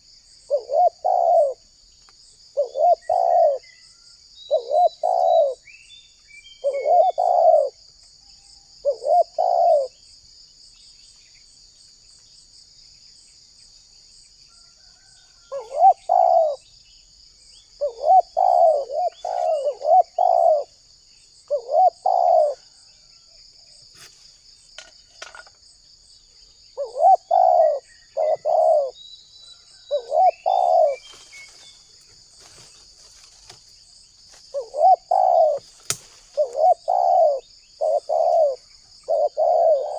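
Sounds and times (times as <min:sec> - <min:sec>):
dove cooing: 0:00.0 - 0:01.6, 0:02.6 - 0:03.6, 0:04.5 - 0:05.6, 0:06.6 - 0:07.8, 0:08.8 - 0:10.0, 0:15.5 - 0:16.6, 0:17.8 - 0:20.8, 0:21.5 - 0:22.8, 0:26.8 - 0:29.0, 0:29.9 - 0:31.2, 0:34.5 - 0:39.9
faint bird chirps: 0:00.0 - 0:39.9
high insect trill: 0:00.0 - 0:39.9.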